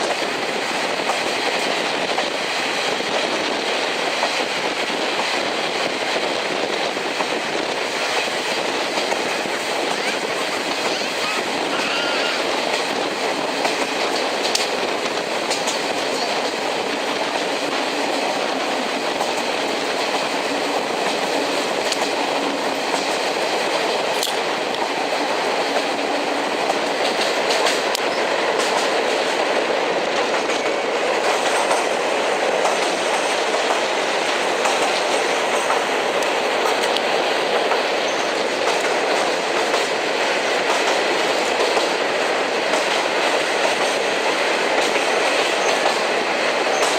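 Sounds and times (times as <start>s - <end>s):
train wheels rolling on rails: 0.0s - 46.9s
clicking over rail joints: 12.5s - 46.9s.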